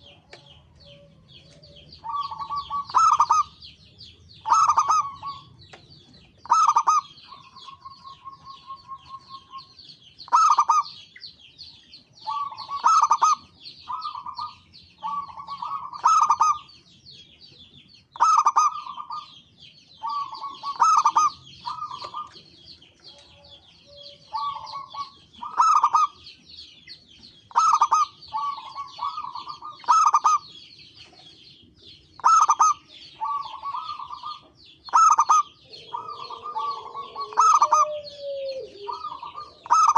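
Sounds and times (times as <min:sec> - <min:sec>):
doves cooing: 0:00.0 - 0:03.8, 0:04.4 - 0:09.7, 0:10.3 - 0:11.0, 0:12.2 - 0:16.7, 0:18.2 - 0:19.4, 0:20.0 - 0:26.3, 0:27.5 - 0:31.2, 0:31.8 - 0:39.9
high-pitched chirping: 0:32.2 - 0:39.9.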